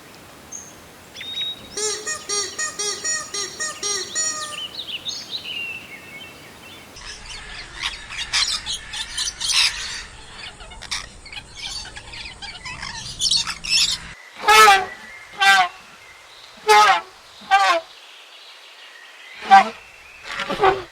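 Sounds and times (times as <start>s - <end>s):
birds chirping: 0.0s - 14.2s.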